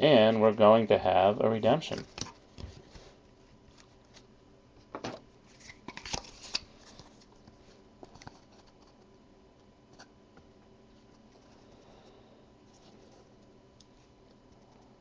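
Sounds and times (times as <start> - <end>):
trading cards rustling and clicking: 5.5 - 9.0.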